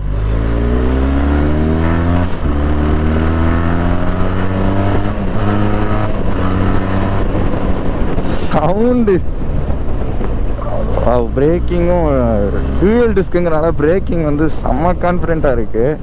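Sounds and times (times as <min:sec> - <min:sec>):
motorcycle engine accelerating hard: 0:00.0 - 0:15.4.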